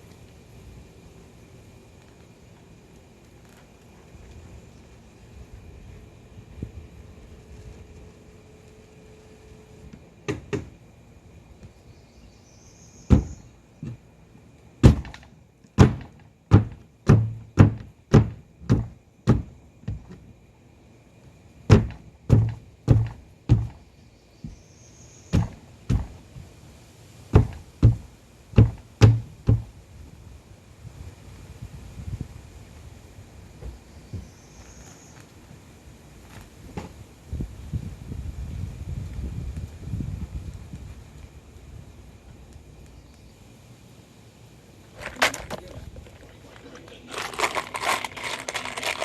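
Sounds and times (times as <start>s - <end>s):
hammering on wooden floor: 13.1s - 14.0s, 14.8s - 15.2s, 15.8s - 20.2s, 21.7s - 23.8s, 25.3s - 26.2s, 27.3s - 29.7s.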